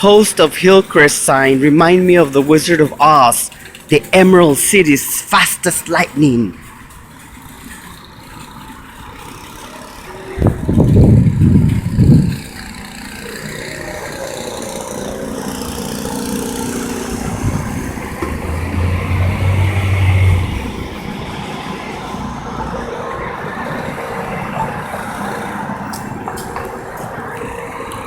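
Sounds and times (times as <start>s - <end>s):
street traffic: 0.0s - 28.0s
deep engine hum: 10.2s - 23.9s.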